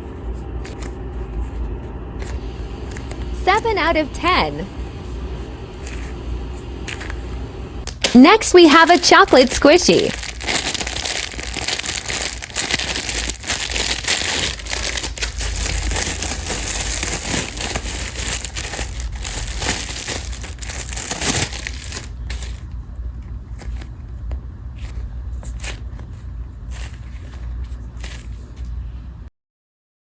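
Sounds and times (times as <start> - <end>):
plastic wrapper crinkling: 7.8 - 28.8.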